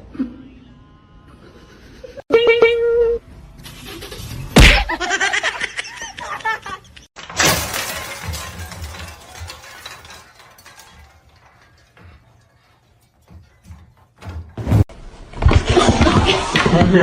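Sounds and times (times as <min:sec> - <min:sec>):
crash with clattering: 0:07.2 - 0:16.1.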